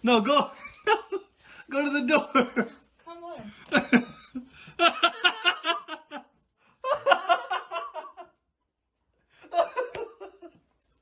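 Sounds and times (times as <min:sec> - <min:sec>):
people laughing: 0:03.7 - 0:06.3.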